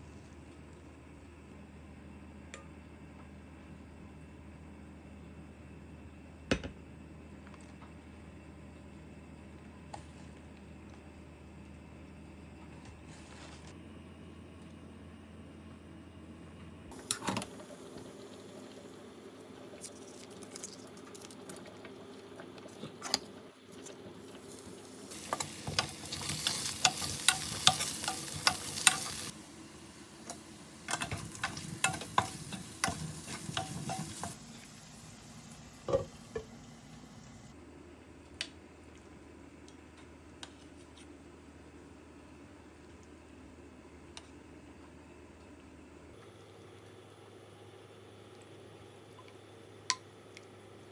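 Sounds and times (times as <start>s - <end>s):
food sizzling in a pan: 23.7s - 37.5s.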